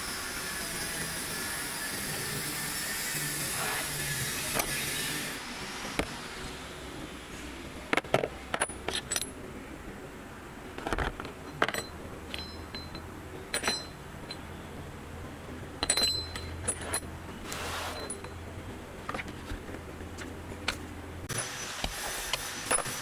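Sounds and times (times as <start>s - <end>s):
metal parts clinking: 7.9s - 9.4s, 10.8s - 14.5s, 15.8s - 17.1s, 17.9s - 18.4s, 22.6s - 23.0s.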